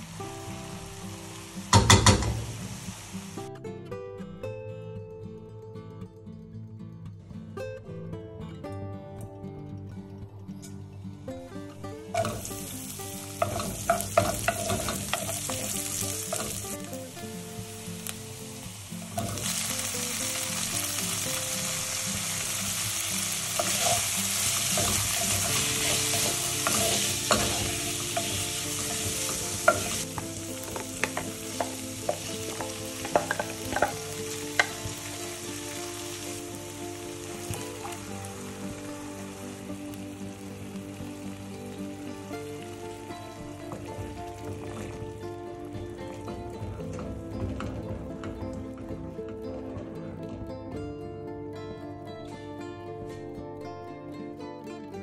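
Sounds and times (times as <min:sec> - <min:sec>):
food sizzling in hot oil: 0:00.0 - 0:03.5, 0:12.1 - 0:46.7.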